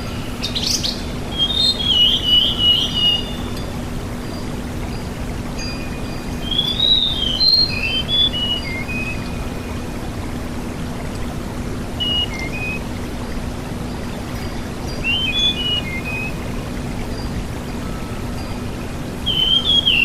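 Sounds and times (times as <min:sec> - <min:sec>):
songbird whistling: 0:00.0 - 0:03.7, 0:05.6 - 0:09.8, 0:12.0 - 0:12.8, 0:14.5 - 0:16.4, 0:19.2 - 0:20.0.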